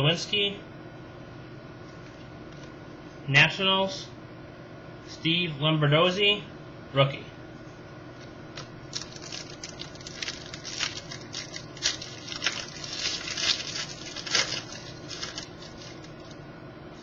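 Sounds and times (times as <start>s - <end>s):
cards rustling and clicking: 8.6s - 16.4s.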